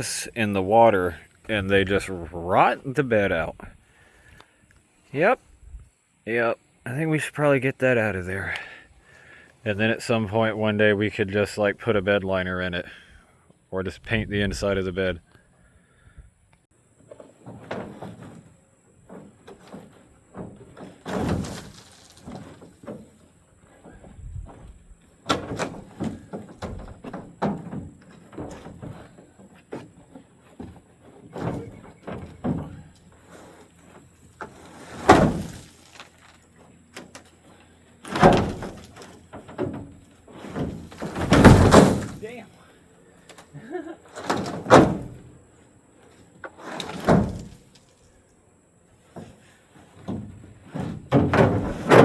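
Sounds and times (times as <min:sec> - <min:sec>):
plastic liner thunks and scrapes: 0:17.1 - 0:37.3, 0:38.0 - 0:42.4, 0:44.2 - 0:45.3, 0:46.4 - 0:47.9, 0:49.1 - 0:52.0.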